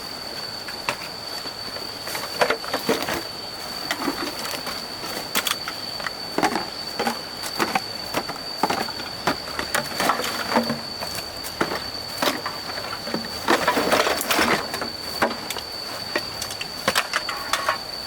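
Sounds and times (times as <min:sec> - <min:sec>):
irregular knocks and clatters: 0:03.9 - 0:17.9.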